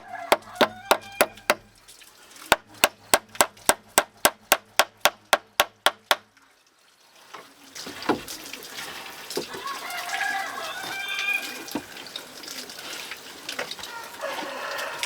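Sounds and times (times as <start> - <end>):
tool striking rapid blows: 0.0 - 1.7, 2.5 - 6.2.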